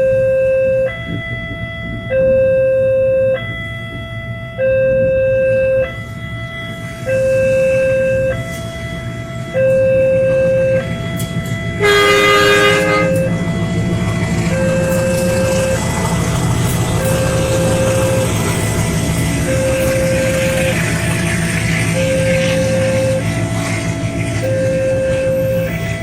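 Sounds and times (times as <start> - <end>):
level crossing two-tone alarm: 0.0 - 26.0
train rumbling: 0.0 - 26.0
train horn: 11.8 - 13.6, 17.0 - 26.0.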